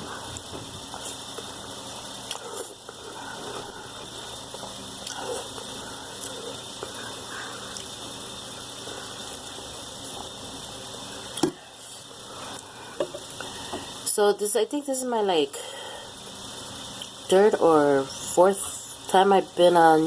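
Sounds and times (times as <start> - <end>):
steady background hiss: 0.0 - 20.0
person chewing and slurping noodles: 2.2 - 7.9.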